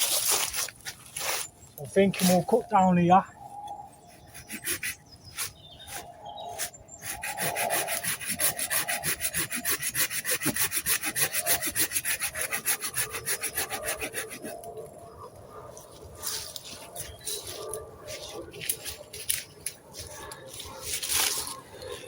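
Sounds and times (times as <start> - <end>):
hand saw cutting wood: 4.2 - 14.7.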